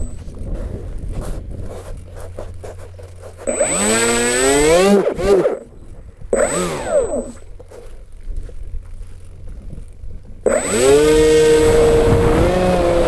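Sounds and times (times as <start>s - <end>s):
low wind rumble: 0.0s - 13.0s
model aircraft motor whining: 0.0s - 13.0s.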